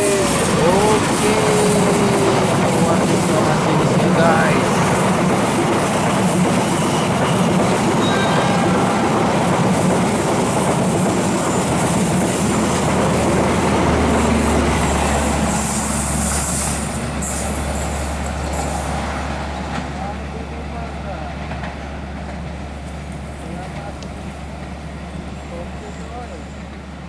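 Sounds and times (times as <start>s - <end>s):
train wheels clattering on rails: 0.0s - 27.0s
wheel squeal: 8.0s - 8.7s.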